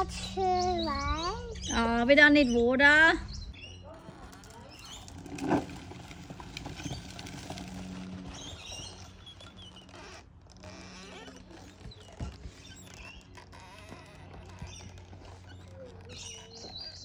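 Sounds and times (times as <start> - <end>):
low hum: 0.0 - 17.0
small birds chirping: 0.0 - 17.0.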